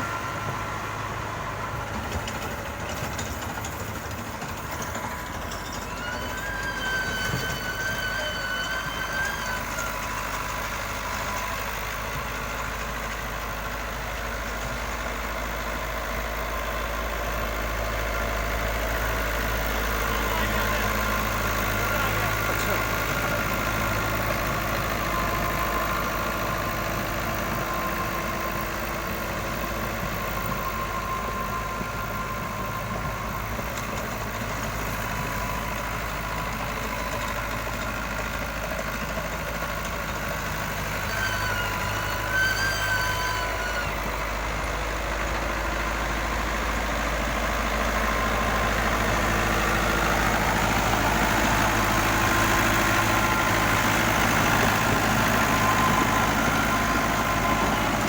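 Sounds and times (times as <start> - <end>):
tractor diesel engine running: 0.0 - 58.0
wavering whistle-like call: 5.8 - 11.3, 40.9 - 44.1.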